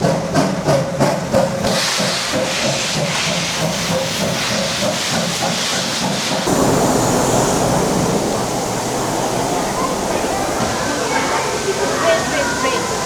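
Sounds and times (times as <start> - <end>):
steam locomotive chuffing: 0.0 - 13.0
steam hissing: 1.7 - 13.0.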